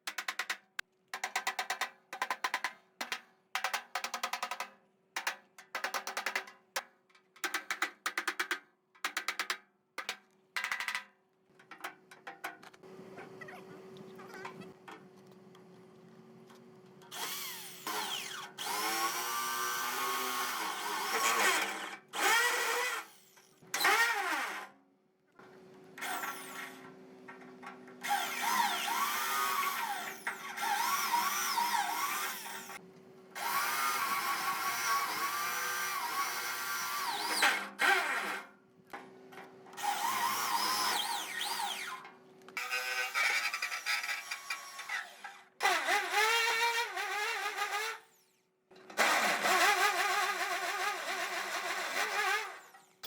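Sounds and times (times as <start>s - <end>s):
power tool motor cutting metal: 17.1s - 24.6s, 28.0s - 32.8s, 39.8s - 42.0s, 42.6s - 48.1s, 49.0s - 52.9s.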